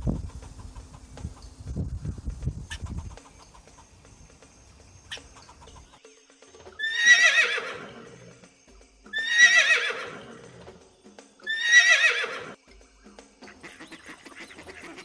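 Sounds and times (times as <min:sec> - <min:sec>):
horse whinnying: 0:06.8 - 0:08.4, 0:09.1 - 0:10.8, 0:11.4 - 0:12.6.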